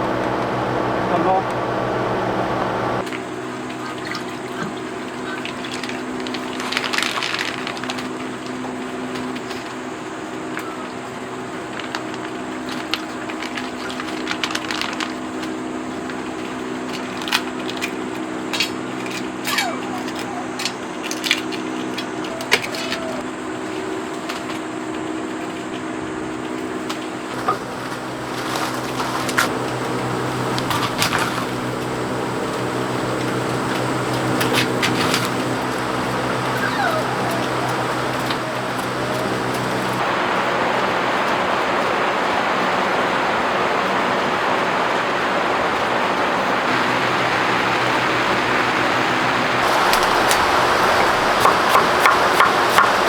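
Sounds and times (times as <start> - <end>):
steady machine hum: 0.0 - 3.8, 24.8 - 53.0.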